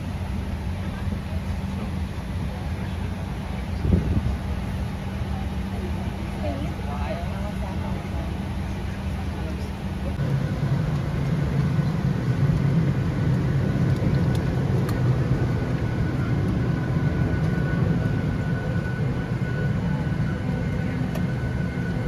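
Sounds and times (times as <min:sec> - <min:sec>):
air-conditioning airflow rumble: 0:02.4 - 0:19.9.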